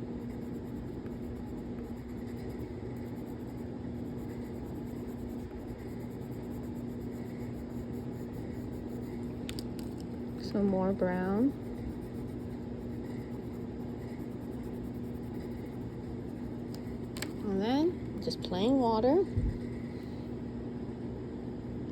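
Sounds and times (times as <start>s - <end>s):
colored pencil scratching on paper: 0.0s - 18.8s
steady background hum: 0.0s - 21.9s.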